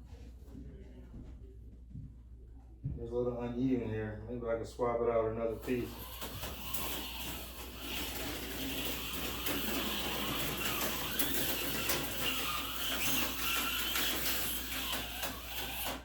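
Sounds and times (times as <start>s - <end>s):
clicks of slot car on track: 5.6s - 16.0s
slot car motor whining: 5.6s - 16.0s.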